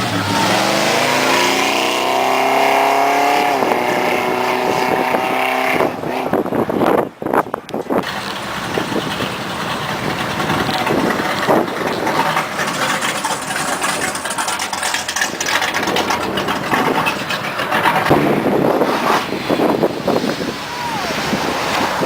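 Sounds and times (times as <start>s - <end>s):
car engine running: 8.1s - 19.1s.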